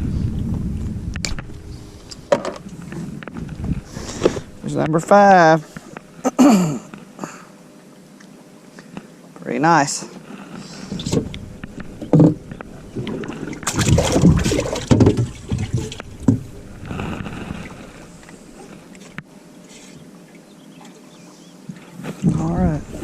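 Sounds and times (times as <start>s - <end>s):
knocks and thumps on a boat: 10.8s - 17.9s.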